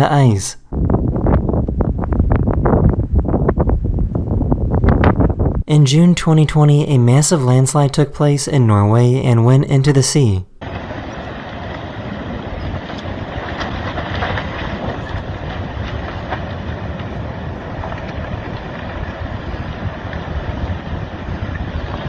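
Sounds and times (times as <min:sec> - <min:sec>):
wind on microphone: 0:00.0 - 0:05.7, 0:10.6 - 0:22.0
landslide rushing: 0:10.6 - 0:22.0
faint cracks: 0:11.5 - 0:22.0.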